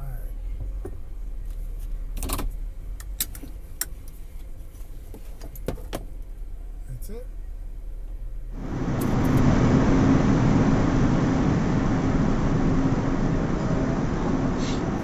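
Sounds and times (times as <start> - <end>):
low car hum: 6.1 - 15.0
car road and wind noise: 7.4 - 15.0.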